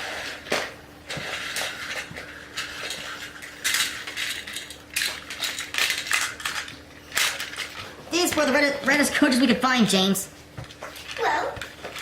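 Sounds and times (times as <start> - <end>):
toy trains clattering: 0.0 - 8.5.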